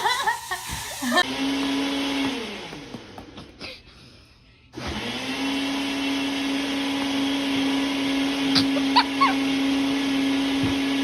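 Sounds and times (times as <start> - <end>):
appliance motor humming: 4.8 - 11.0.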